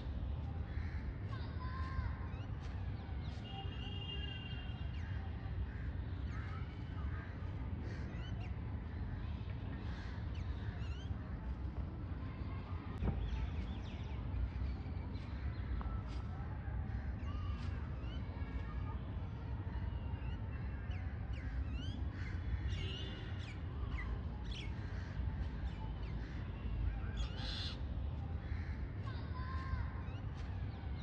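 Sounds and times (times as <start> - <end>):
birds chirping and cawing: 4.8 - 11.6, 20.2 - 31.0.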